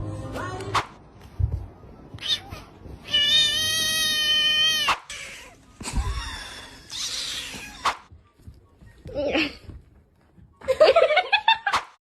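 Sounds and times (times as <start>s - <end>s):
kitten meowing: 2.2s - 5.6s.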